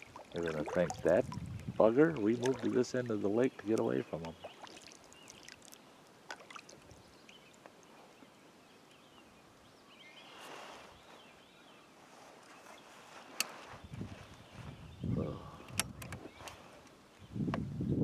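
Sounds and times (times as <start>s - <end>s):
kayak paddle dipping into water: 0.0s - 8.2s
water swish: 0.0s - 8.2s
water trickling off paddle blade: 0.0s - 8.3s.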